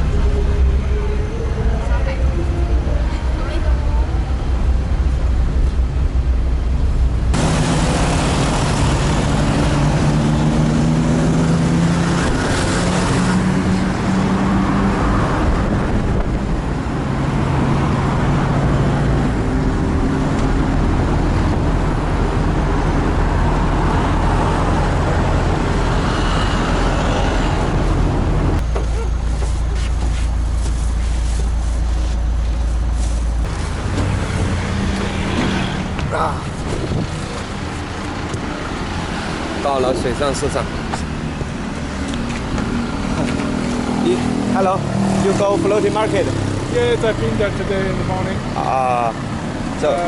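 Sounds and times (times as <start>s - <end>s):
road noise rushing: 0.0s - 50.0s
vehicle engine: 0.0s - 50.0s.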